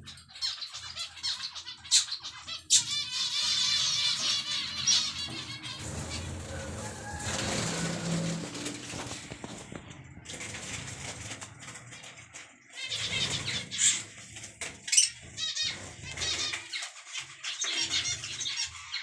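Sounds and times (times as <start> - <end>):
small birds chirping and twittering: 0.0 - 19.0
sharp bird calls: 14.8 - 19.0.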